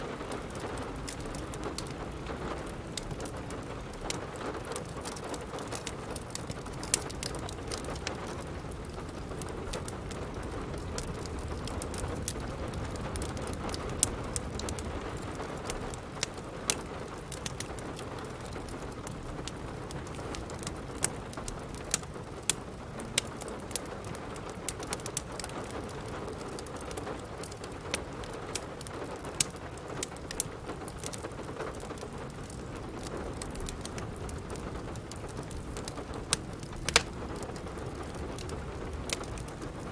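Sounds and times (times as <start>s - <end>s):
steady rain: 0.0s - 39.9s
wood fire crackling and popping: 0.0s - 39.9s.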